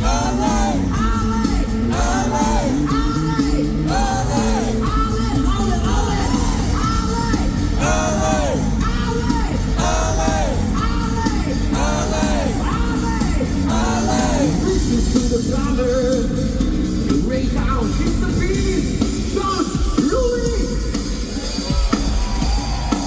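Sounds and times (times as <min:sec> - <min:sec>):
yelled vocal phrases: 0:00.0 - 0:15.9
funk band playing: 0:00.0 - 0:23.0.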